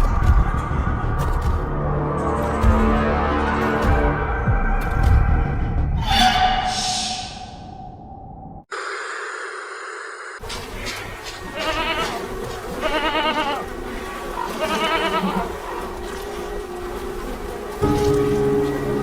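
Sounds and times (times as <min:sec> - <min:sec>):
animal bleating: 0:11.5 - 0:13.6, 0:14.5 - 0:15.5.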